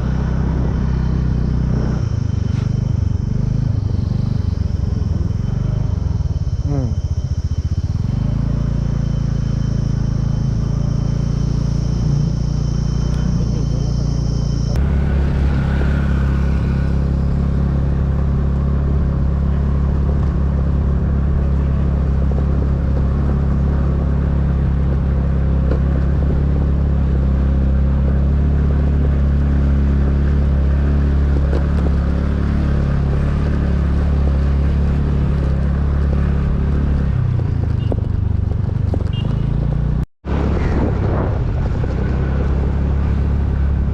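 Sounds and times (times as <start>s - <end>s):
motorcycle engine running: 0.0s - 43.9s
road and wind noise: 0.0s - 43.9s.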